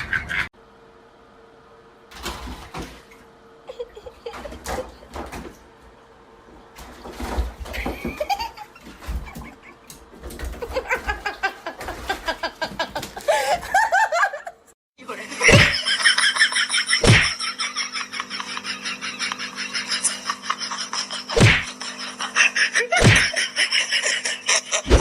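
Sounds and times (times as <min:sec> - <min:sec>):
people laughing: 0:03.7 - 0:05.1, 0:10.6 - 0:25.0
sharp thuds: 0:17.0 - 0:17.3, 0:23.0 - 0:23.3.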